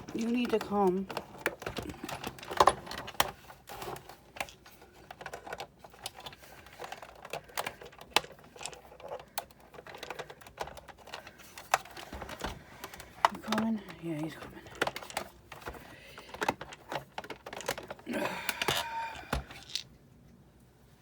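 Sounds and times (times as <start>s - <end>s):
plastic and metal parts clicking: 0.0s - 19.9s.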